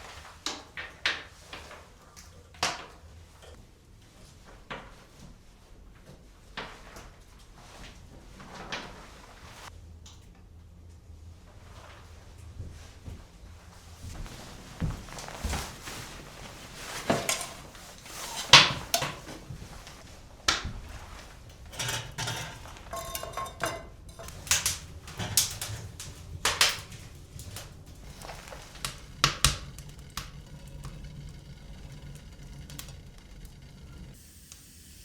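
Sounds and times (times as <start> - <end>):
objects knocking and clattering: 14.0 - 34.2.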